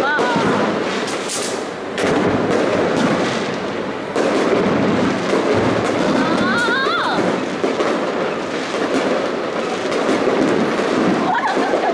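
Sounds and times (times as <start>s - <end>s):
fireworks bangs and crackle: 0.0s - 11.9s
fireworks booms: 0.0s - 11.9s.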